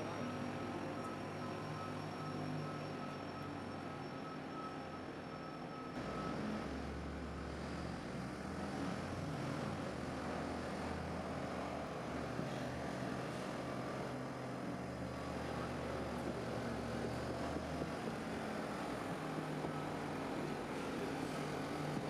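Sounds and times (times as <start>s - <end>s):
faint high whine: 0.0s - 6.4s
large engine rumbling: 5.9s - 22.0s.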